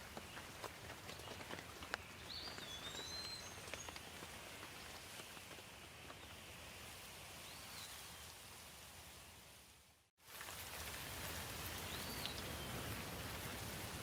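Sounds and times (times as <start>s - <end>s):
light rain: 0.0s - 14.0s
bird chirping: 1.2s - 4.1s
water drips: 10.3s - 14.0s.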